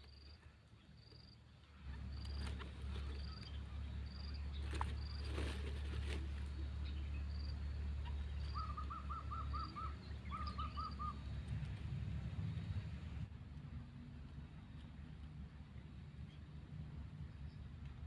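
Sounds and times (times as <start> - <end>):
bird chirping: 0.0 - 11.5
steady low rumble: 0.0 - 18.0.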